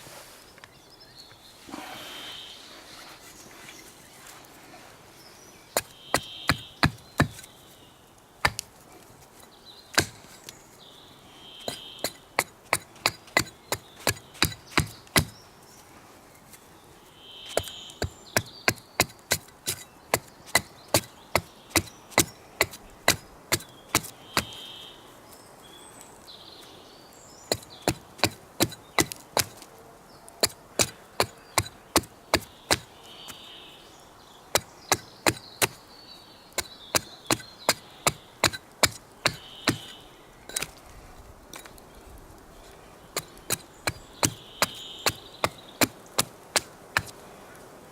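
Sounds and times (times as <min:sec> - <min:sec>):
bird calling: 0:00.6 - 0:04.5, 0:05.2 - 0:08.6, 0:09.8 - 0:15.5, 0:17.0 - 0:29.6, 0:30.2 - 0:40.9, 0:41.6 - 0:47.2
wood being chopped: 0:05.8 - 0:07.5, 0:08.4 - 0:08.7, 0:09.9 - 0:10.5, 0:11.6 - 0:15.4, 0:17.5 - 0:24.6, 0:27.5 - 0:29.7, 0:30.4 - 0:33.4, 0:34.5 - 0:35.8, 0:36.5 - 0:40.8, 0:43.2 - 0:47.2.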